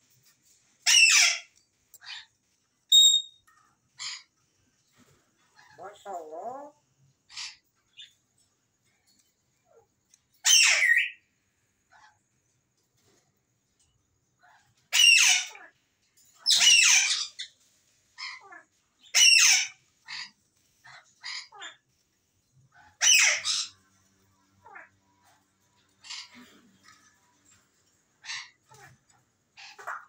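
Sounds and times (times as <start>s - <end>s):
parrot squawking: 0.8s - 2.3s, 2.9s - 3.4s, 5.6s - 7.6s, 10.4s - 11.2s, 14.9s - 15.8s, 16.4s - 17.5s, 18.2s - 21.8s, 22.7s - 23.8s, 24.6s - 27.1s, 28.2s - 30.0s
parrot squeaks and clicks: 2.9s - 4.3s.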